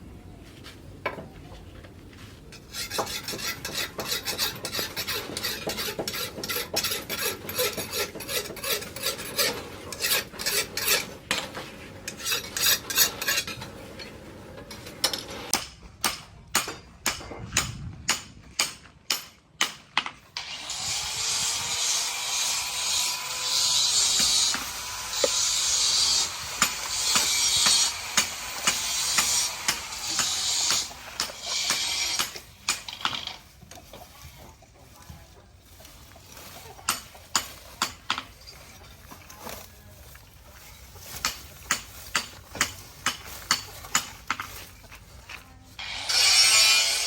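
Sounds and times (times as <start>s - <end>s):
sickle blade being sharpened: 2.7s - 11.4s, 12.1s - 13.6s, 23.6s - 33.4s.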